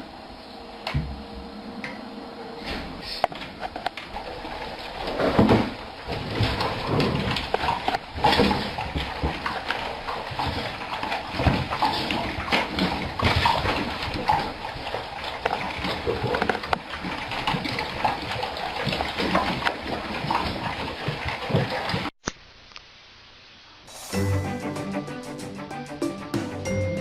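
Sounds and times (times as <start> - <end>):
dog eating noisily: 6.1 - 22.1.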